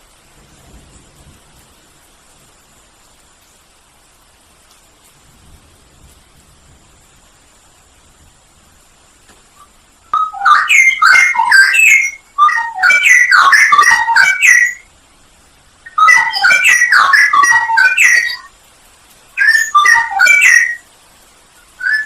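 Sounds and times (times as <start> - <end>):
bird singing warbled phrases: 9.6 - 14.9, 15.8 - 18.5, 19.4 - 20.9, 21.6 - 22.0.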